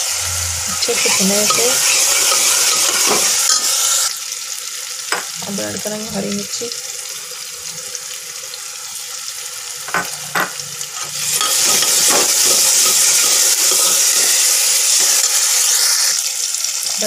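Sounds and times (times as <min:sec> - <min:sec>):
food sizzling in pot: 0:00.0 - 0:17.0
knocks on metal pot: 0:05.1 - 0:05.3, 0:09.9 - 0:10.6.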